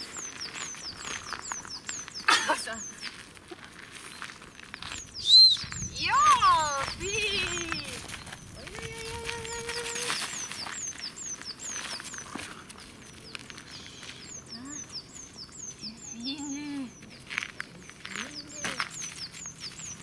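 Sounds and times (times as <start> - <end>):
songbird chirping: 0.0 - 3.3, 4.0 - 20.0
crunches on gravel: 0.0 - 15.8, 16.4 - 20.0
woman calling: 5.9 - 10.4, 15.8 - 17.0.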